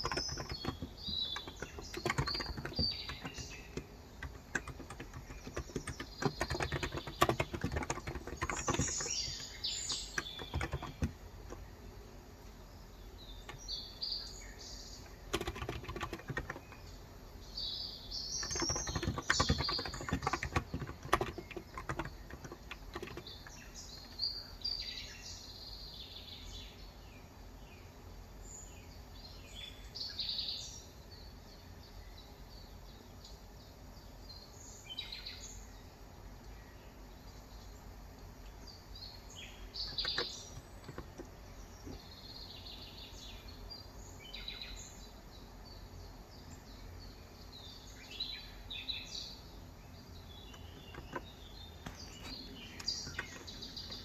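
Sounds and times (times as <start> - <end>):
typing on a keyboard: 0.0 - 11.7, 15.0 - 16.9, 18.4 - 24.2, 39.8 - 42.1, 50.5 - 54.0
steady background noise: 0.0 - 26.2
birds chirping: 0.0 - 27.0, 36.5 - 54.0.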